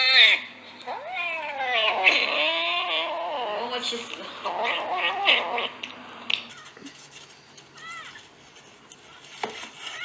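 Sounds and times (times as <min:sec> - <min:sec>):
cat yowling: 0:00.0 - 0:03.8, 0:04.4 - 0:05.8.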